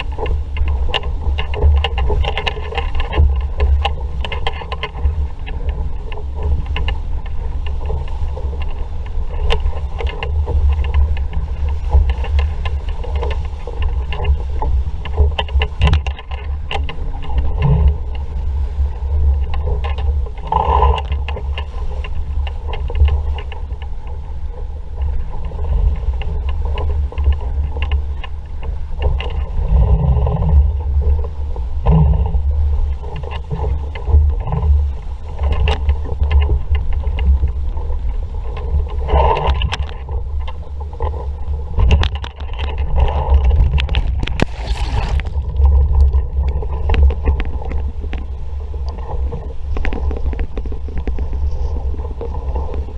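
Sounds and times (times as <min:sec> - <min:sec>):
water slapping against hull: 0:00.0 - 0:52.9
wind buffeting microphone: 0:00.0 - 0:52.9.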